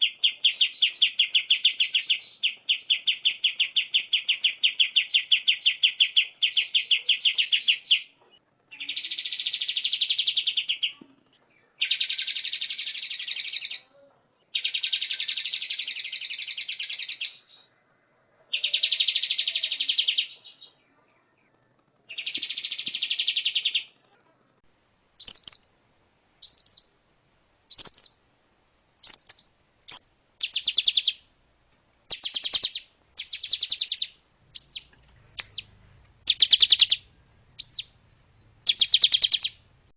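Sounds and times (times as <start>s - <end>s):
songbird trills: 0.0s - 24.2s, 25.2s - 25.8s, 26.4s - 27.0s, 27.7s - 28.3s, 29.0s - 31.3s, 32.1s - 39.7s
high sharp bird notes: 25.2s - 25.7s, 26.4s - 27.0s, 27.7s - 28.2s, 29.0s - 31.2s, 32.1s - 39.6s.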